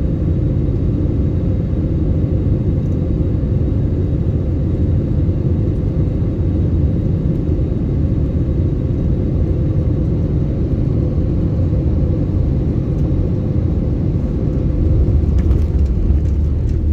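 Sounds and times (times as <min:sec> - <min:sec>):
airliner cabin rumble: 0:00.0 - 0:16.9.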